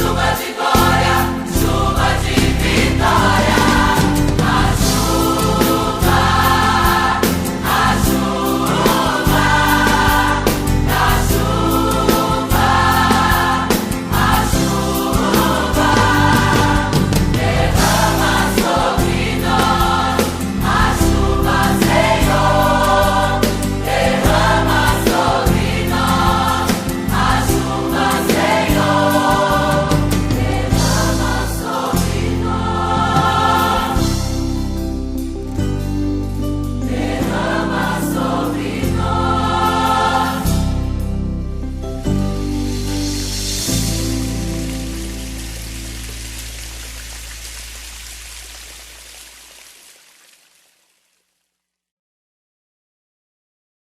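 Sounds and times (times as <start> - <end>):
choir singing: 0.0 - 34.4, 36.8 - 41.0
band accompaniment with bass: 0.0 - 47.2.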